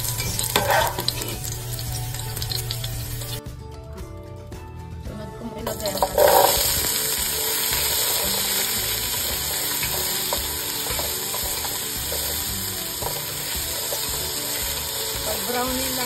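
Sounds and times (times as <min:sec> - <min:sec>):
potatoes sizzling in hot oil: 0:00.0 - 0:03.4, 0:05.7 - 0:16.0.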